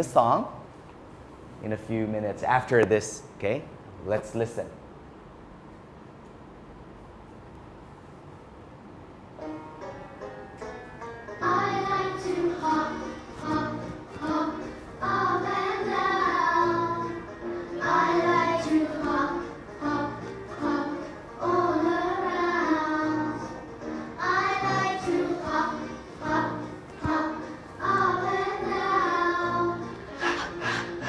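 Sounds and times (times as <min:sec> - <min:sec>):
child singing: 0:11.4 - 0:23.6, 0:24.2 - 0:29.9.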